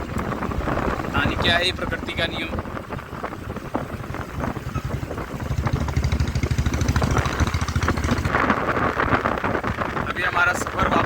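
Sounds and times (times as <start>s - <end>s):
motorcycle engine running: 0.0s - 11.0s
wind noise on microphone: 0.0s - 11.0s.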